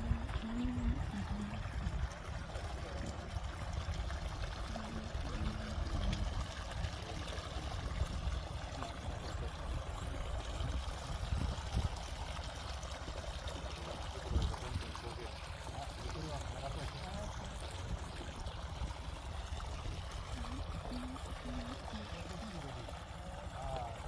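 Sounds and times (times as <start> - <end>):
water pouring and flowing: 0.0 - 24.0.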